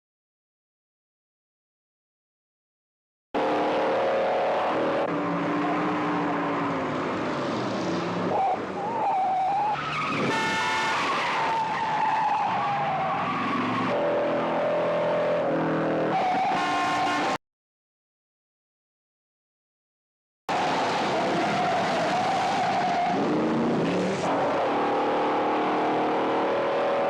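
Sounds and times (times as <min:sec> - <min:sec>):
car engines running hard: 0:03.4 - 0:17.4, 0:20.5 - 0:27.0
tyres squealing and skidding: 0:05.2 - 0:17.4, 0:20.5 - 0:24.8.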